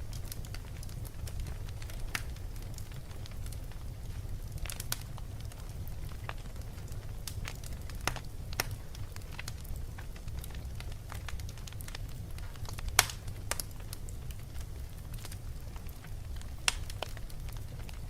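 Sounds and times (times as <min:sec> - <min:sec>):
sharp fire pops: 0:00.0 - 0:18.0
wood fire crackling: 0:00.0 - 0:18.0.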